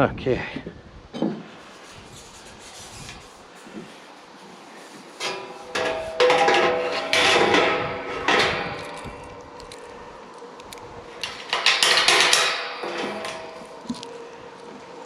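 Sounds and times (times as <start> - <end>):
metal clanks and knocks: 5.2 - 9.9, 11.2 - 14.2.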